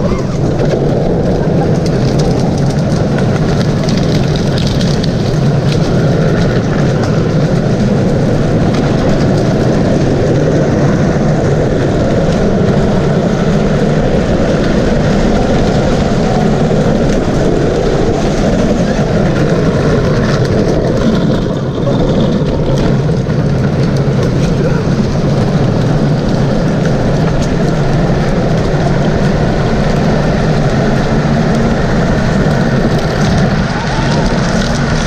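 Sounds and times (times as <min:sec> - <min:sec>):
road noise: 0:00.0 - 0:35.0
vehicle engine running: 0:00.0 - 0:35.0.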